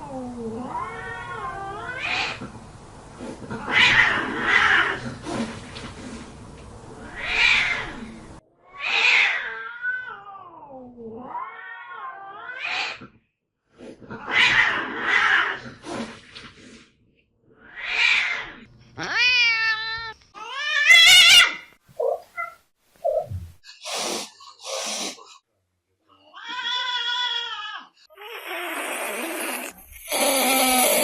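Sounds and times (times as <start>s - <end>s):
cats hissing: 0.8s - 2.5s, 3.2s - 6.3s, 7.0s - 10.1s, 12.5s - 13.2s, 17.6s - 25.4s, 28.1s - 31.0s
cat yowling: 17.7s - 22.6s.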